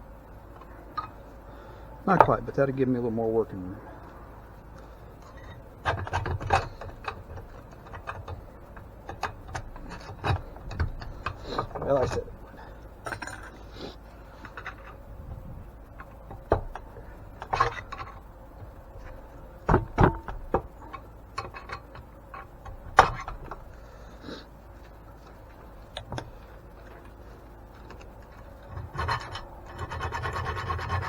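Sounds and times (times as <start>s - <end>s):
low steady hum: 0.0s - 31.0s
knocks and scrapes on metal: 14.3s - 23.7s, 27.9s - 31.0s.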